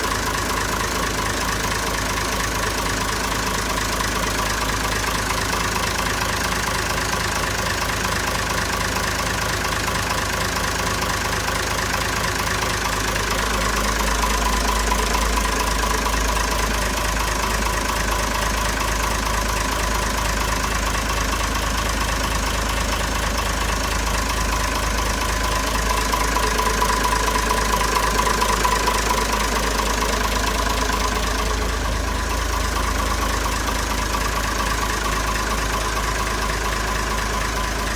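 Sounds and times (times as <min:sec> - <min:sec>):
engine running: 0:11.0 - 0:37.9.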